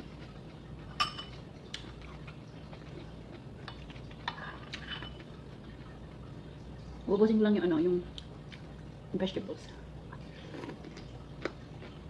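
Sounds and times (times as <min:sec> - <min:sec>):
utensils clinking against dishes: 0:01.0 - 0:01.4.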